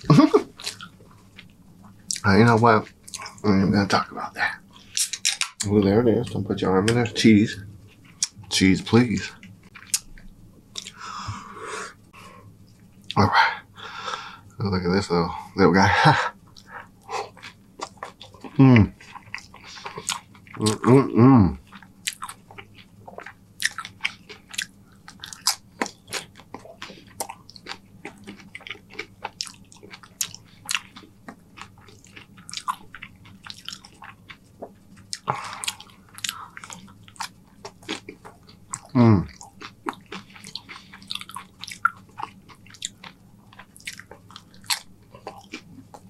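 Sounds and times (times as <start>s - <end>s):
crunching and chewing chips: 16.5s - 21.0s, 21.6s - 46.0s.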